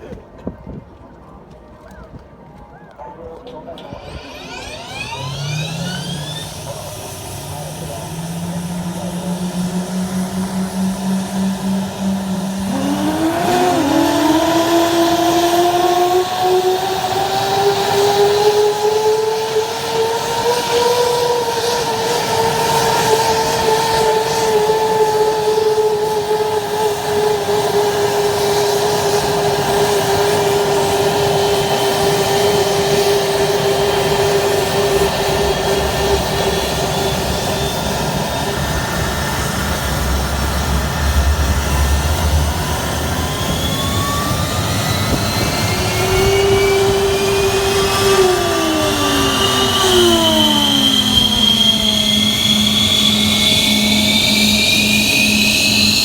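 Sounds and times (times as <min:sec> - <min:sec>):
jet engine high whine: 0:02.7 - 0:56.0
jet engine spooling up: 0:03.6 - 0:56.0
low rumble: 0:35.8 - 0:52.8.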